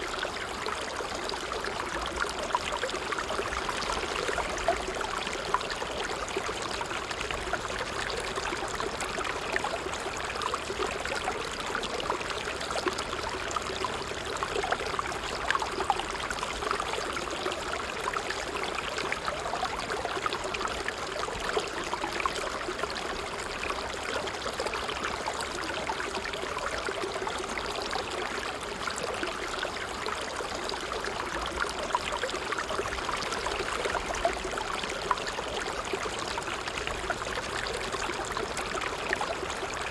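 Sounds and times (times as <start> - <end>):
water trickling over stones: 0.0 - 39.9.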